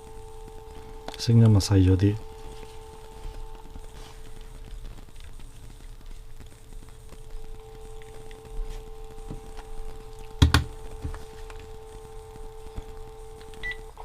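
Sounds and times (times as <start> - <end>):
phone dial tone through speaker: 0.0 - 4.2, 7.2 - 14.0.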